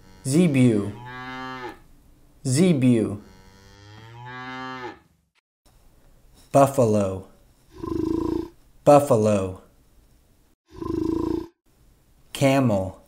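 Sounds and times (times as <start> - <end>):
cattle mooing: 0.0 - 1.8, 3.2 - 5.1.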